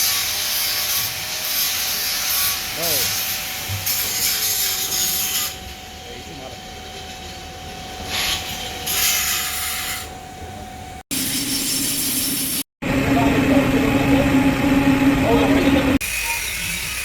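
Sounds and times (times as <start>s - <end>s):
welding arc hissing: 0.0s - 5.4s, 11.1s - 12.6s
steady high whine: 12.8s - 16.0s.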